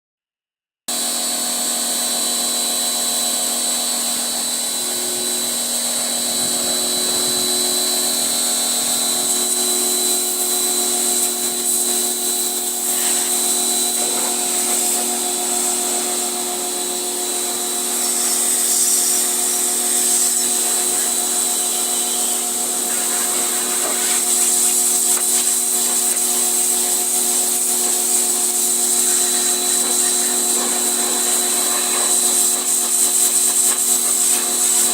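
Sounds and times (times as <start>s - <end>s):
pressure washer running: 0.9s - 34.9s.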